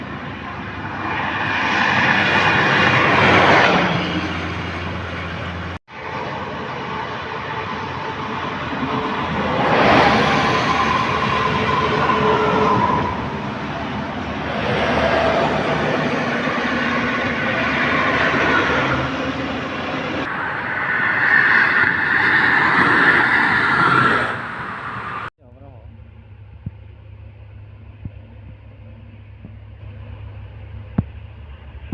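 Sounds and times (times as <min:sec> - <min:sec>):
vehicle passing: 0:00.0 - 0:06.3, 0:09.4 - 0:25.3
low engine hum: 0:24.3 - 0:31.9.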